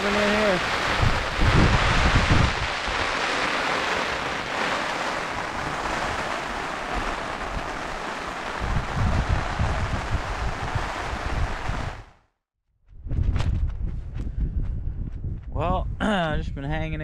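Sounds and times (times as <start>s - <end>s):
wind buffeting microphone: 0.0s - 12.1s, 12.9s - 17.0s
rain shower hissing: 0.0s - 12.2s.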